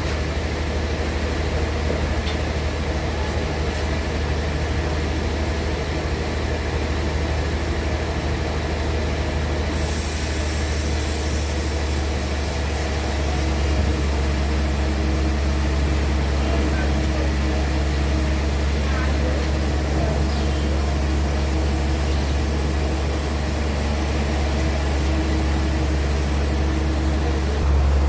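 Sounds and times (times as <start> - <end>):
band saw machinery humming: 9.7 - 28.0
high hiss: 9.7 - 28.0.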